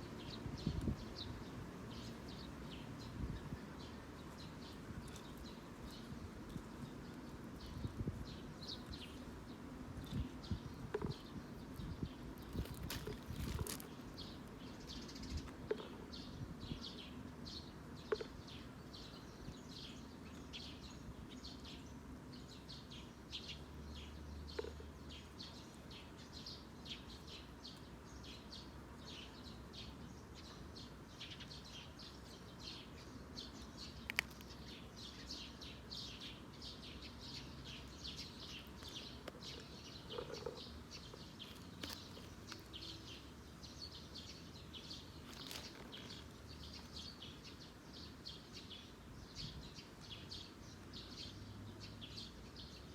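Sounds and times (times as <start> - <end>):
sparrows chirping: 0.0 - 52.9.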